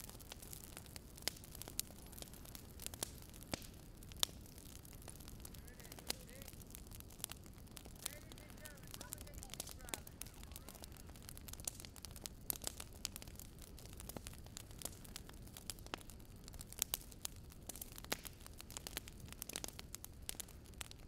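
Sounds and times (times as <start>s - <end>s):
low steady rumble: 0.0s - 16.6s
campfire crackling and popping: 0.0s - 21.0s.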